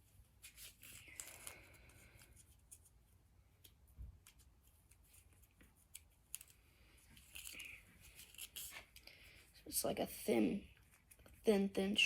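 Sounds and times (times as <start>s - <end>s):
hands working tape on a stick: 0.0s - 9.1s.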